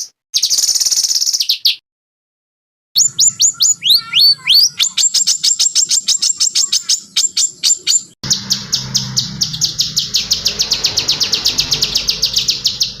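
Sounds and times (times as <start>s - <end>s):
songbird whistled song: 0.0s - 1.8s, 3.0s - 13.0s
songbird trill: 3.0s - 13.0s.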